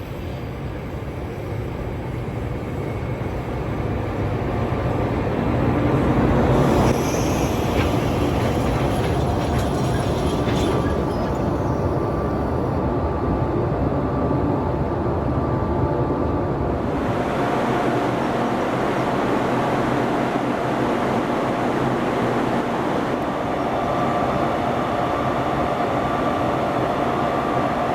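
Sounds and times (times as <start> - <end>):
train rumbling on rails: 0.0 - 27.9
rail clicks: 4.1 - 12.8.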